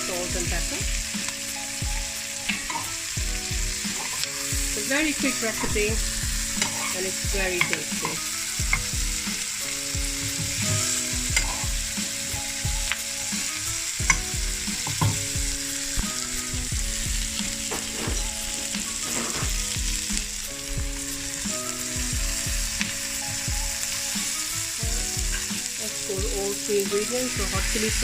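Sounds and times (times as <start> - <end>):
food sizzling in oil: 0.0 - 28.0
stirring knocks and scrapes: 3.8 - 4.3, 10.0 - 11.8, 14.0 - 15.4, 17.4 - 20.3.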